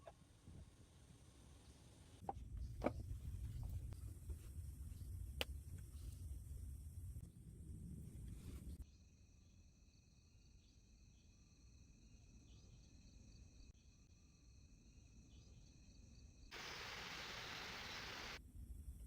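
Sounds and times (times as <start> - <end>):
insect chorus chirping: 9.9 - 18.4
loud even hiss: 16.5 - 18.4.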